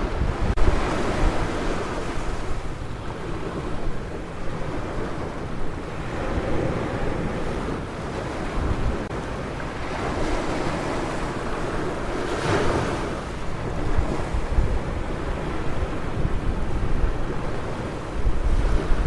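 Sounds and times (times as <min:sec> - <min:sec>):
waves breaking: 0:00.0 - 0:19.0
wind rumbling on microphone: 0:00.0 - 0:19.0.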